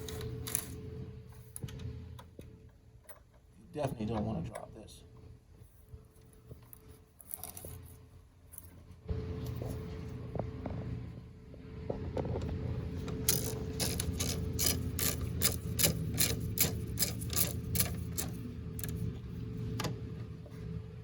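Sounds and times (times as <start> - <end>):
hand ratchet clicking: 13.3 - 19.0.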